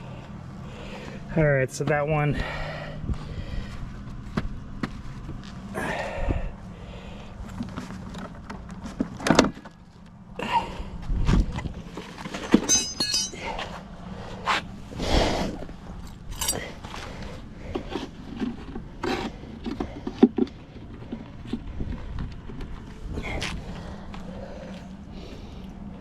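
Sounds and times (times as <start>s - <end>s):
knocks and clinks of hive tool: 12.6s - 13.5s.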